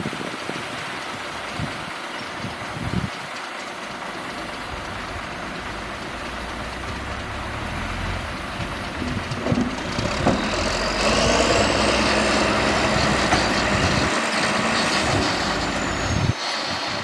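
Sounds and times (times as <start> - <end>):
earthmoving machine engine running: 1.1 - 17.0
low knocks: 8.3 - 10.9.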